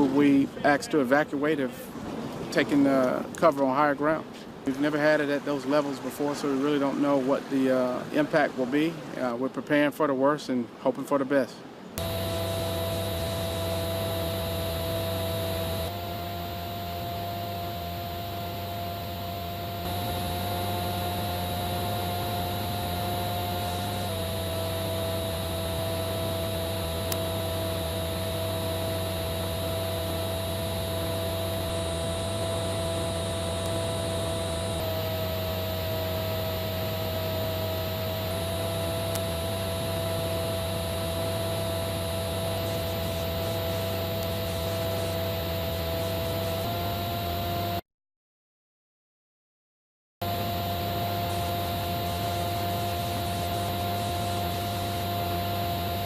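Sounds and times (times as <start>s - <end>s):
steady hum: 12.0s - 47.7s, 50.2s - 56.0s.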